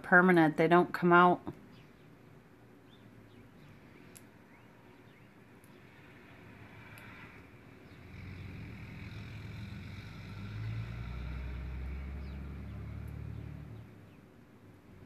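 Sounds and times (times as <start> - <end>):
vehicle engine passing: 5.9 - 14.2.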